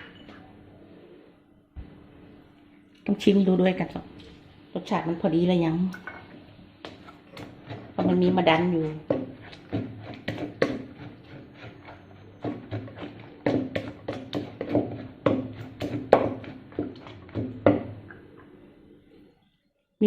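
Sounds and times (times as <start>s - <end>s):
pestle knocking in a mortar: 6.8s - 18.2s.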